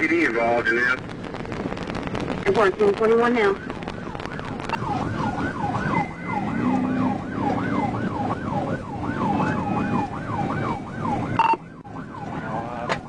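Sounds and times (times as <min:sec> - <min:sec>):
engine and road noise: 0:00.0 - 0:13.0
police siren yelping: 0:02.6 - 0:13.0.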